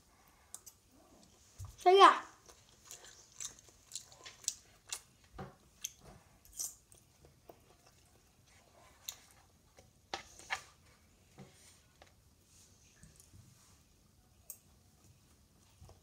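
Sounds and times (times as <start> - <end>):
child chewing: 0.0 - 11.1.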